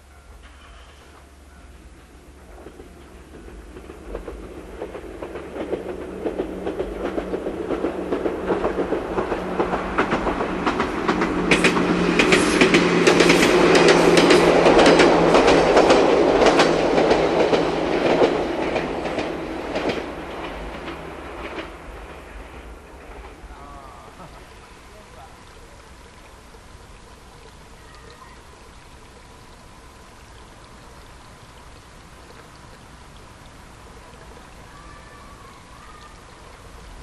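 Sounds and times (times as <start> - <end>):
wheels clacking over rail joints: 0.2 - 25.2
train motor hum: 0.3 - 24.2.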